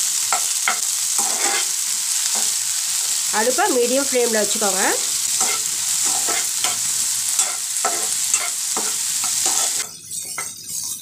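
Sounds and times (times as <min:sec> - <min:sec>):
vegetables sizzling in oil: 0:00.0 - 0:11.0
spatula scraping pan: 0:00.3 - 0:03.0, 0:05.2 - 0:10.6.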